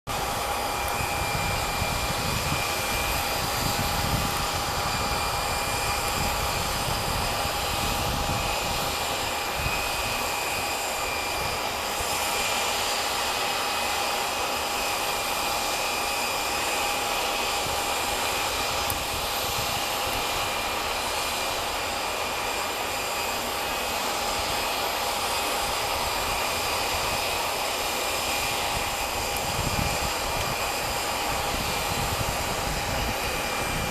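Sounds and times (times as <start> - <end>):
wind on microphone: 0.1 - 12.9, 17.1 - 21.7, 28.2 - 33.9
distant jet engines whining: 0.1 - 33.9.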